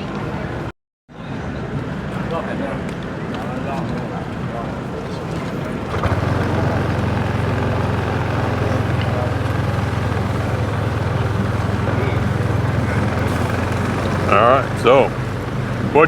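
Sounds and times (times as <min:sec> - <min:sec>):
road noise: 0:03.1 - 0:16.0
motorbike engine cruising: 0:04.3 - 0:16.0.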